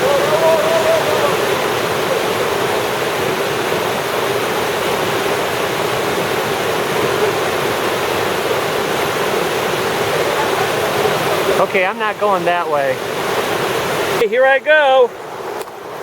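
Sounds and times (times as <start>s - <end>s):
river and waterfall roaring: 0.0s - 16.0s.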